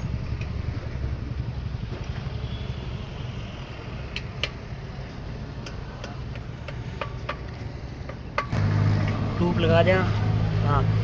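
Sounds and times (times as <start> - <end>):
sharp metallic clicks and taps: 4.1 - 9.2.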